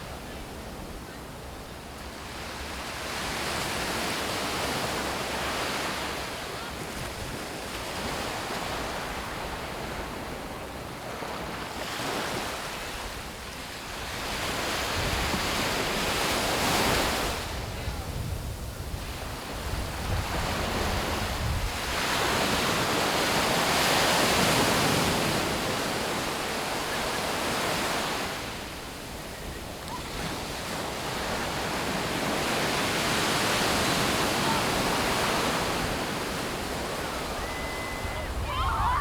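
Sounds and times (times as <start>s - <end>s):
waves breaking on beach: 0.0s - 39.0s
wind rumble on microphone: 16.7s - 22.6s, 35.8s - 39.0s.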